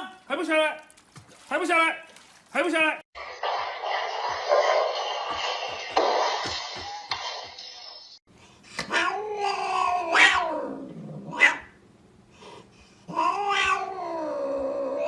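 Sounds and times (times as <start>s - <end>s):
cat yowling: 8.9s - 11.8s, 13.1s - 15.0s.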